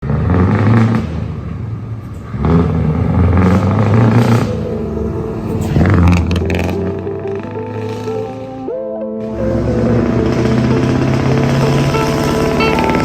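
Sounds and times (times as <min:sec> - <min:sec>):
diesel truck engine revving: 0:00.0 - 0:13.0.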